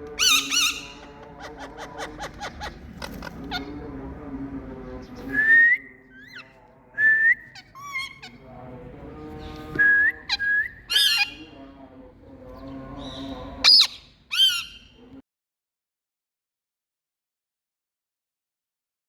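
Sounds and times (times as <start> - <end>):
parrots calling: 0.0 - 4.2, 6.1 - 6.6, 7.3 - 8.5, 10.2 - 11.6, 12.5 - 15.0.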